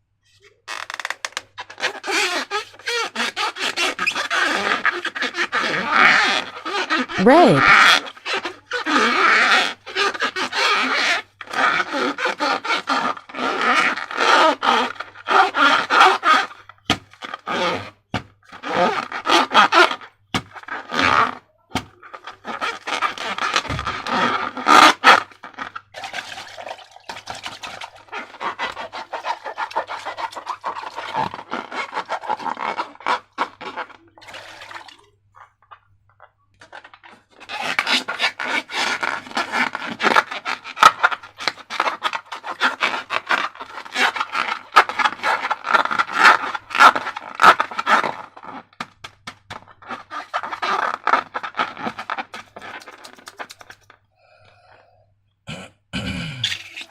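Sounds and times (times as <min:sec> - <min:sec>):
slime squelching by hand: 0:25.8 - 0:36.0.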